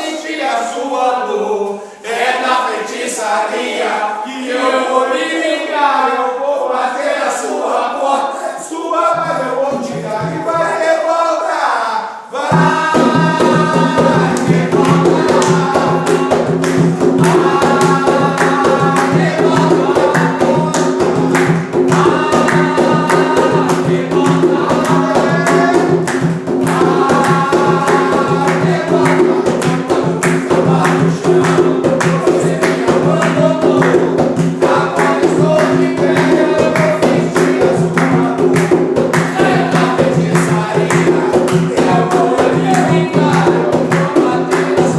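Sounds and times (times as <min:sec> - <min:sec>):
group singing a chant: 0:00.0 - 0:44.9
fast even percussion: 0:09.1 - 0:11.0, 0:12.4 - 0:44.9.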